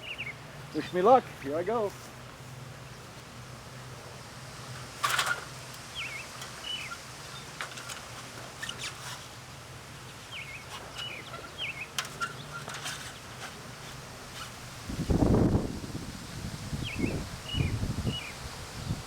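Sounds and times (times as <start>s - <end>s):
bird chirping: 0.0s - 1.1s, 5.9s - 7.6s, 10.0s - 13.4s
light rustles and clicks: 4.7s - 9.4s, 10.4s - 14.6s.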